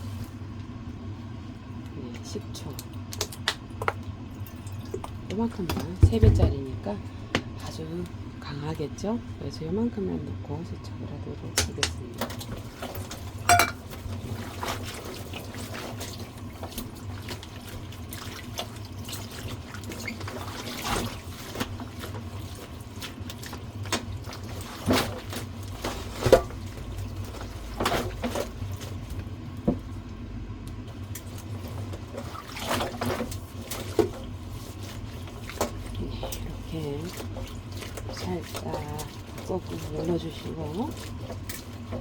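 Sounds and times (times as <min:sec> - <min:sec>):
water sloshing in a basin: 0:00.0 - 0:42.0
splashes and knocks against bowl: 0:11.6 - 0:29.9.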